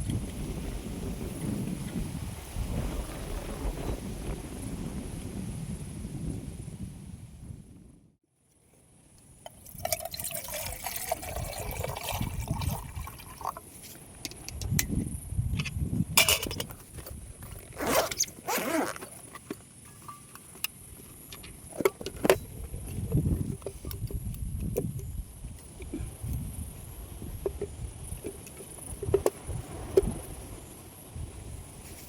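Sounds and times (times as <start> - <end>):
liquid pouring into container: 9.5 - 13.6
clinks and knocks of handling: 15.6 - 18.2, 19.0 - 25.1.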